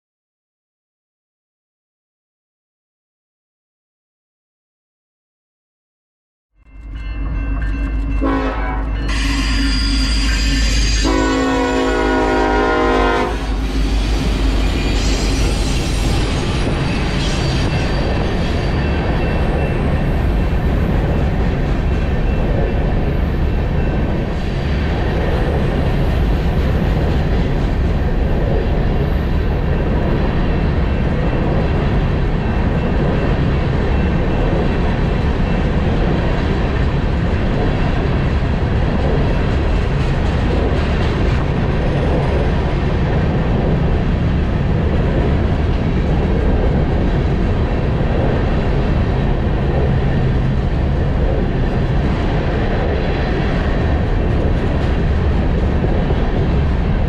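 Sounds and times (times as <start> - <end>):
steel wheels running on rails: 6.7 - 57.0.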